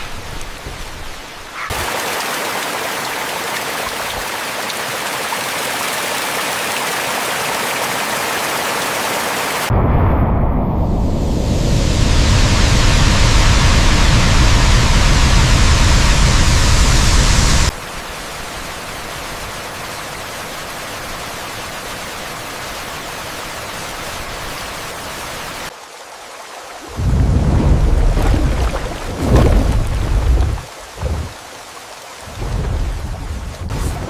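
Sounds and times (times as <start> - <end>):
soft rain hiss: 25.7 - 34.0
heavy rain with deep rumble: 26.8 - 34.0.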